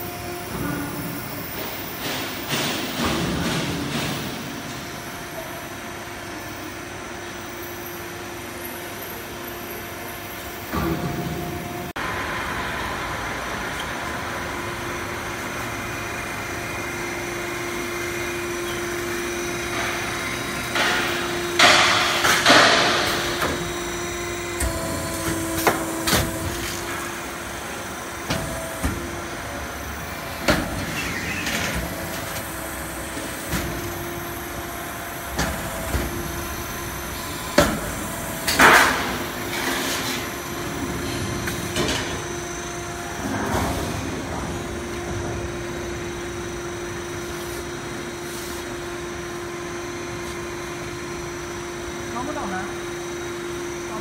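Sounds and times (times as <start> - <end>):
machine hum with held tone: 0.0 - 54.0
metallic clanks and bangs: 19.7 - 23.9.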